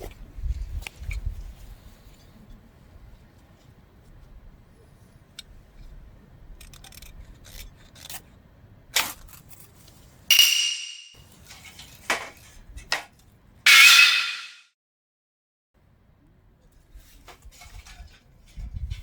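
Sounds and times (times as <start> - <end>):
loud metallic clanks: 10.3 - 11.2, 13.7 - 14.6.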